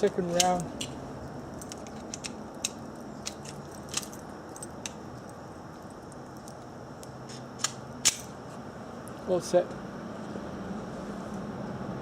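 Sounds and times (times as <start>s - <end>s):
sharp metallic clicks: 0.0s - 8.4s.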